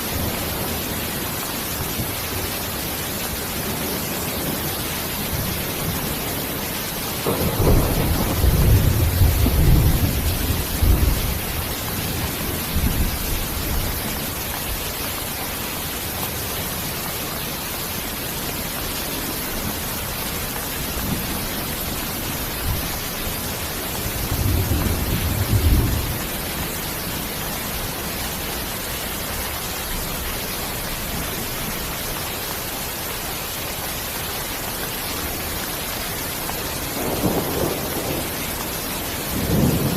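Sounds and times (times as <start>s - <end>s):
heavy rain: 0.0s - 39.9s
thunder rumbling: 5.2s - 14.8s, 20.8s - 26.7s, 36.8s - 39.9s.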